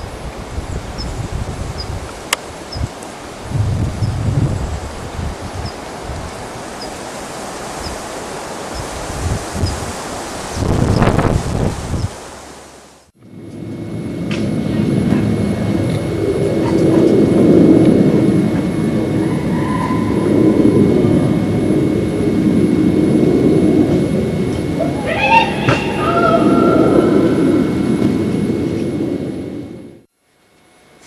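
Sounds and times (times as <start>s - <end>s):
wind noise on microphone: 0.0s - 12.5s, 13.2s - 30.1s
low engine rumble: 12.7s - 30.1s.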